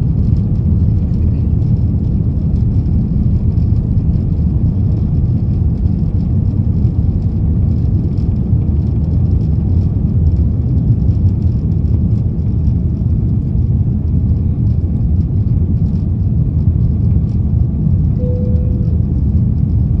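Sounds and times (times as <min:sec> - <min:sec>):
vehicle rumbling in motion: 0:00.0 - 0:20.0
faint short tone: 0:18.2 - 0:19.3.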